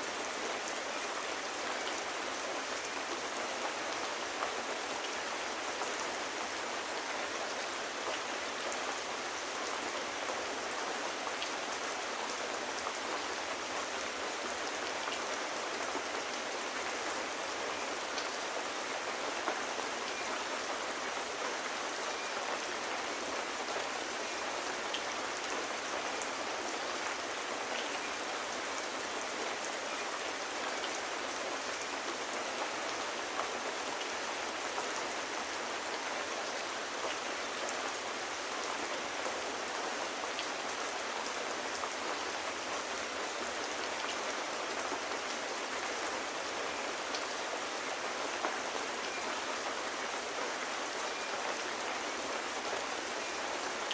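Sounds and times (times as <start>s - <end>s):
steady rain hiss: 0.0s - 53.9s.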